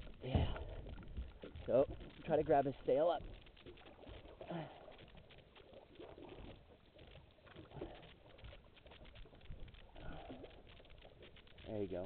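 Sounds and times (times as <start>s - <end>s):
faint low rumble: 0.0s - 12.0s.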